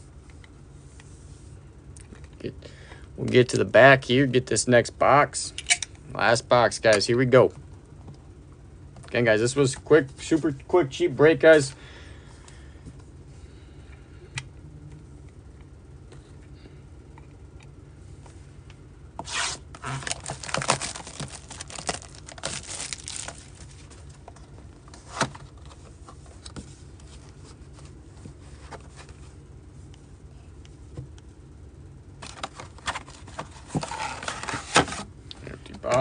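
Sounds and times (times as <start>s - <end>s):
shrink wrap ripping and crackling: 19.8s - 23.6s.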